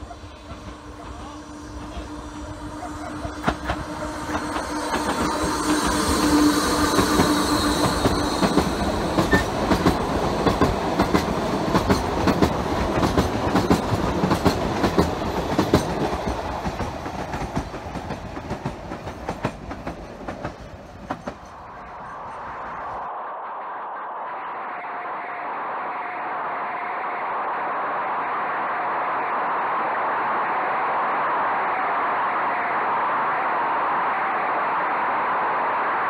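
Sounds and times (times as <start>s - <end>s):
train rolling past: 0.0s - 23.2s.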